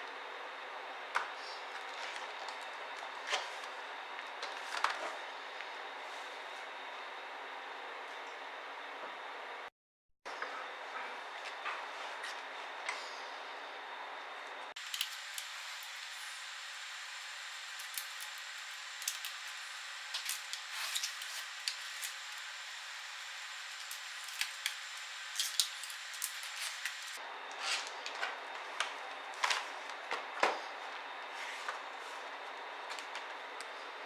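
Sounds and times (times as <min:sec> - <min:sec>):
small laptop parts clicking: 0:14.8 - 0:27.2
steady hiss: 0:14.8 - 0:27.2.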